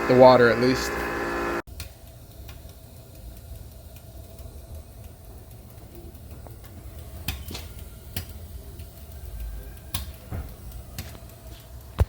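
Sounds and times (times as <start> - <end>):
steady hum: 0.0 - 9.2.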